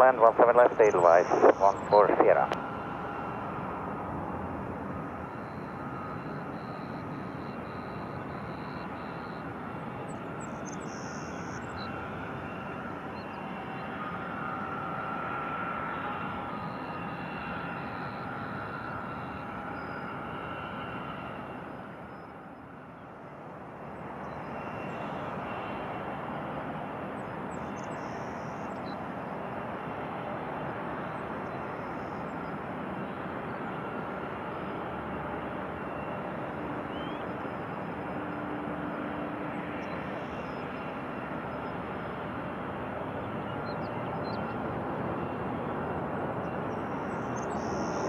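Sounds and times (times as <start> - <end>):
jet engines rushing: 0.0 - 8.4
jet engine whine: 0.0 - 48.0.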